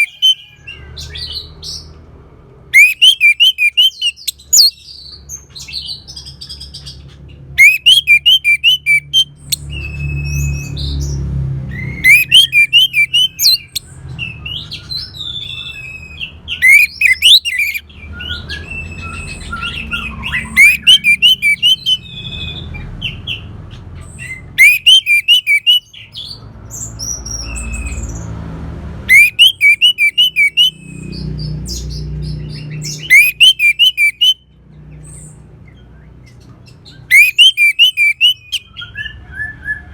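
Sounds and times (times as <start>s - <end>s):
thrush singing: 0.0s - 0.9s, 2.8s - 4.7s, 7.6s - 10.2s, 11.7s - 14.6s, 16.3s - 18.0s, 18.7s - 22.4s, 24.6s - 25.8s, 29.1s - 31.4s, 32.0s - 34.4s, 37.0s - 38.8s.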